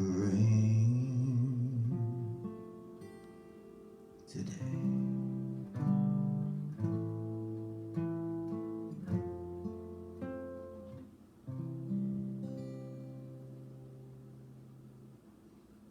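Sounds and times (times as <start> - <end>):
acoustic guitar strummed chords: 0.0 - 15.3.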